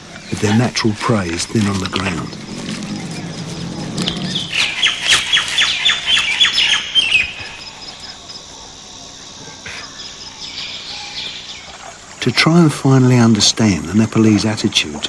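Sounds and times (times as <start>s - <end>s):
bird calling harsh high notes: 0.0s - 8.2s.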